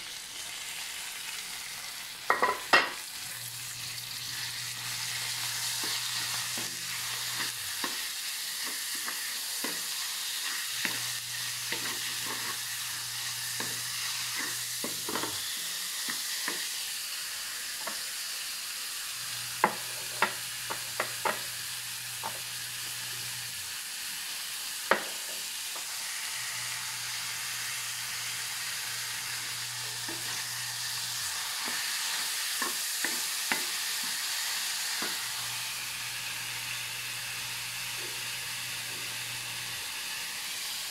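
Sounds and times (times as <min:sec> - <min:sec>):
meat and onion sizzling: 0:00.0 - 0:40.9
spatula scraping and tapping pan: 0:05.7 - 0:12.6, 0:13.5 - 0:16.7, 0:31.6 - 0:34.2.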